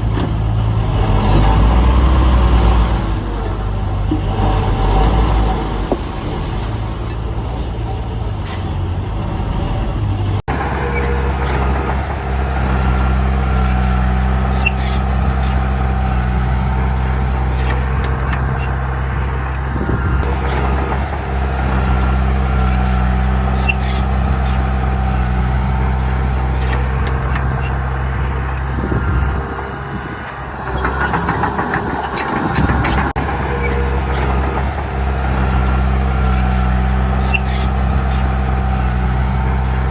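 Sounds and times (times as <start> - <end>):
heavy diesel engine running: 0.0 - 39.9
metallic clicks and clanks: 10.5 - 39.9.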